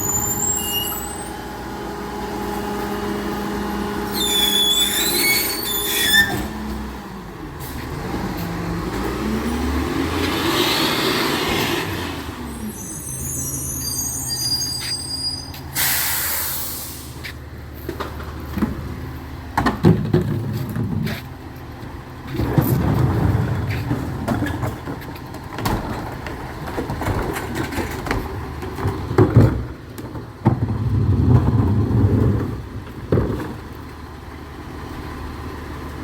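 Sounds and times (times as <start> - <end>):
truck brake squeals: 0.0 - 1.4, 4.1 - 6.6, 12.4 - 17.3
truck engine revving: 1.5 - 14.6
air brake hiss: 12.6 - 17.4.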